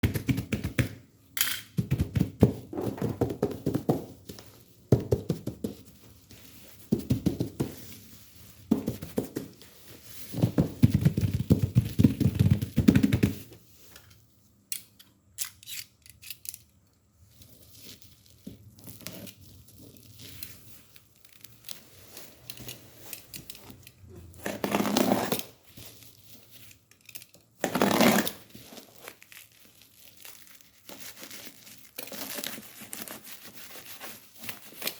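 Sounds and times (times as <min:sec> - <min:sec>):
wrapping tearing and crinkling: 0:17.2 - 0:34.9.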